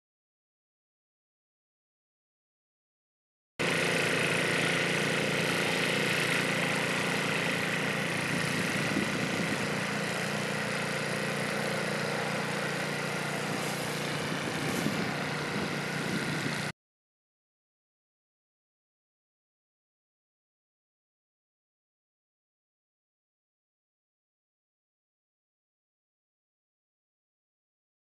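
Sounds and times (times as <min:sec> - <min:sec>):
motor running steadily: 0:03.6 - 0:16.7.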